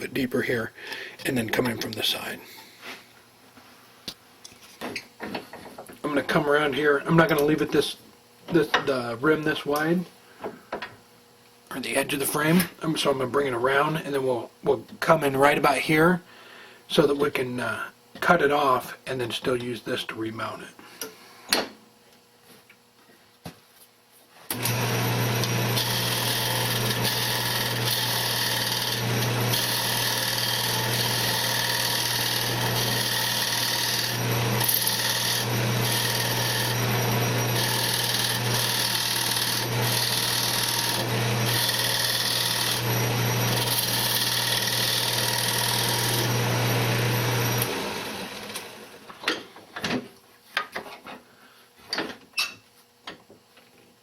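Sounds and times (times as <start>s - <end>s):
wood lathe cutting: 24.5s - 49.0s.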